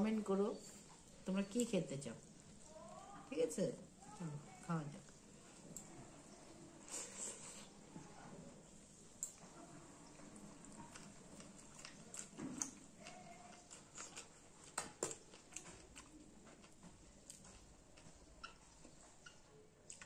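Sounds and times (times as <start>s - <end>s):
wet chewing: 9.2s - 20.0s.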